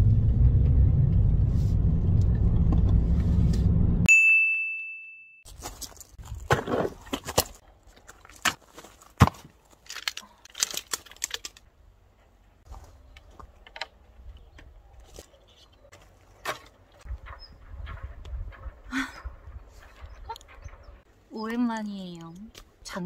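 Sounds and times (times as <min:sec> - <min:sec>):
camping gear clinking and rustling: 0:05.4 - 0:18.7.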